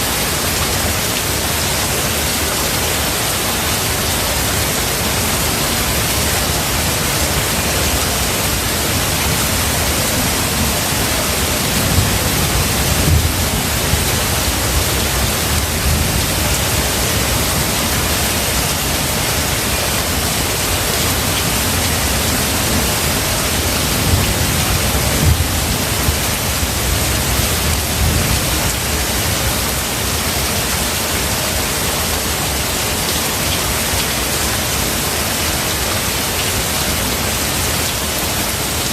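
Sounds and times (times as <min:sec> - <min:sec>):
steady rain: 0:00.0 - 0:38.9
thunder rumbling: 0:08.6 - 0:18.6, 0:21.5 - 0:29.4.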